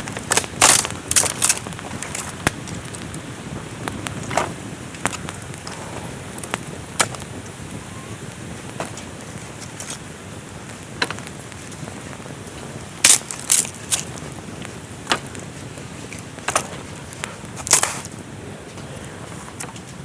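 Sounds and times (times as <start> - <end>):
sharp cracks and snaps: 0.0 - 18.2
steady rain hiss: 0.0 - 20.0.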